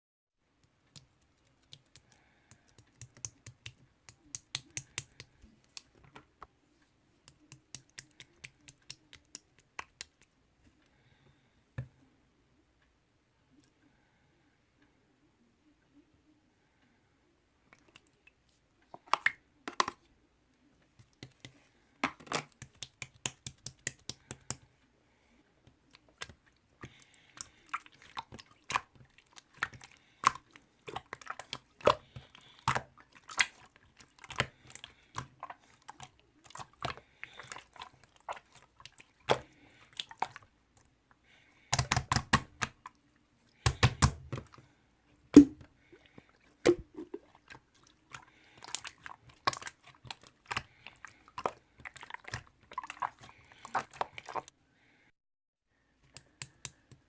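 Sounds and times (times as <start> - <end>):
slime squelching: 0.6 - 6.0, 7.2 - 10.3, 21.0 - 24.8, 25.7 - 44.7, 45.4 - 54.5.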